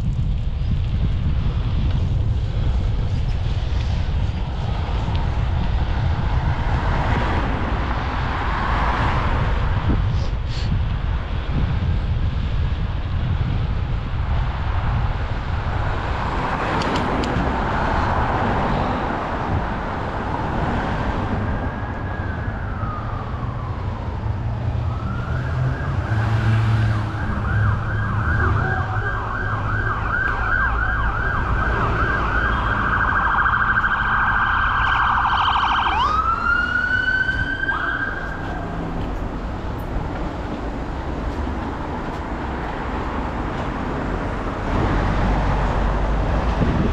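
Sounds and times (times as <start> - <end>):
emergency vehicle siren: 17.9 - 42.6.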